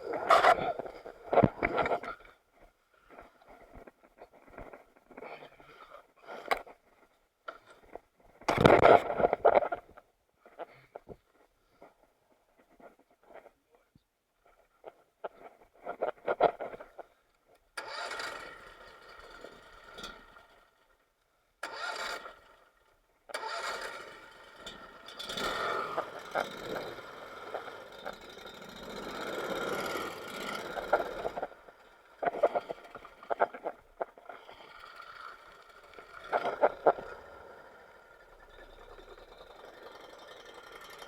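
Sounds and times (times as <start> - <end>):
small boat motor running: 17.8 - 20.8, 21.6 - 41.0.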